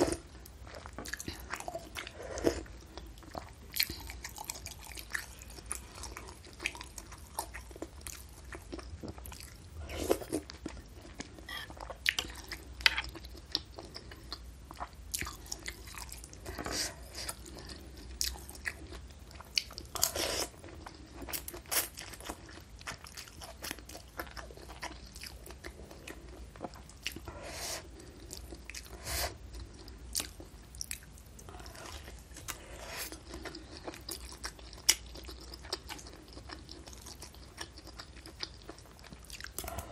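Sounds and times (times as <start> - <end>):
wet chewing and biting: 29.5 - 39.9.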